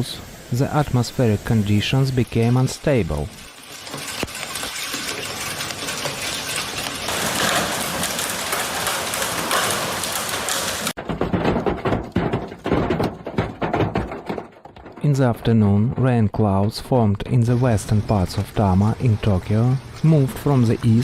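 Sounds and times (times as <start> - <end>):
heavy rain hissing: 0.0 - 11.0, 17.3 - 21.0
scattered knocks and splashes: 2.1 - 17.0.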